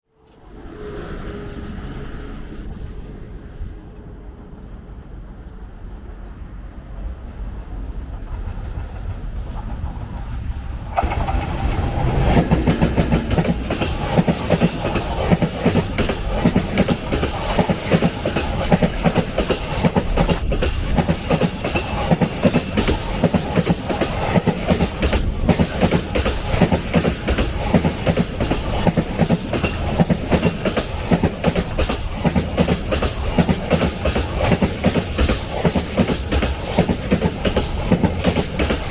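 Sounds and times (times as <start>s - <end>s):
electric locomotive rumble: 0.3s - 38.9s
train wheels clattering over rail joints: 8.2s - 38.9s.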